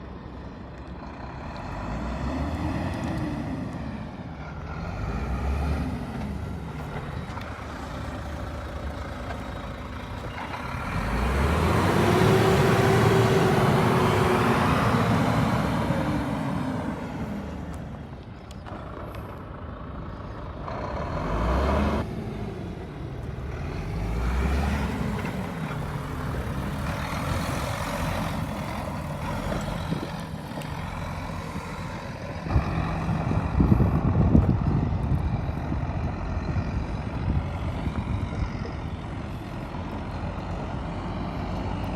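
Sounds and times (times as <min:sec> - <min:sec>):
truck diesel engine revving: 0:00.1 - 0:41.9.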